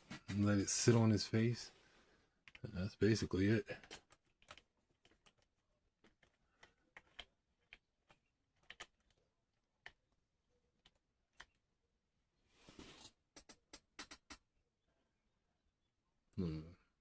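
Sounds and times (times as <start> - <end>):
plastic figure parts clicking: 3.8 - 10.2.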